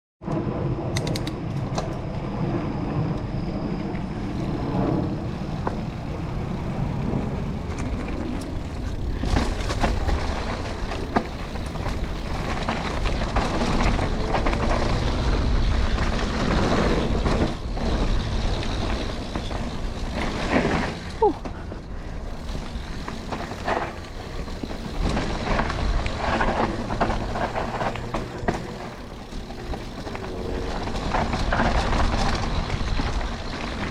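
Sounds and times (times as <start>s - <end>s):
bike rolling and wind rumble: 0.2s - 33.9s
gliding squeal: 1.9s - 15.5s.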